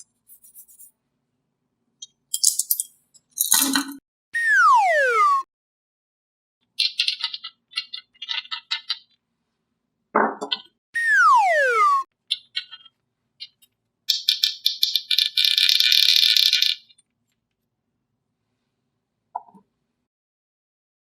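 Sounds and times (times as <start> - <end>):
cartoon falling whistle: 4.4 - 5.5, 11.0 - 12.1.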